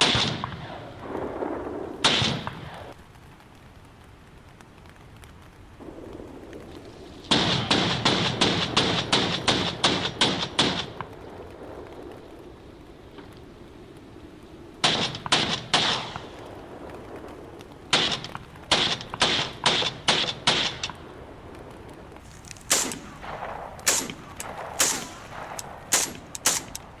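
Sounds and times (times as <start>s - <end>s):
gunshots: 0.0s - 2.9s, 7.3s - 11.1s, 14.8s - 16.4s, 17.9s - 21.0s, 22.2s - 27.0s.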